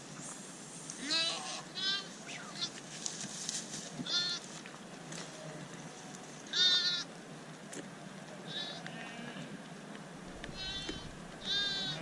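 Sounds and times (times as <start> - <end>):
sheep bleating: 1.0 - 2.7, 4.1 - 4.4, 6.5 - 7.1, 8.5 - 9.5, 10.5 - 12.0.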